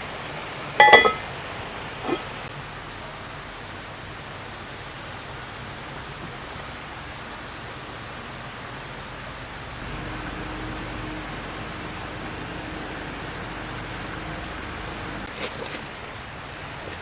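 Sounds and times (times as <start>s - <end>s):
stream flowing over rocks: 0.0s - 17.0s
low hum: 9.8s - 15.3s.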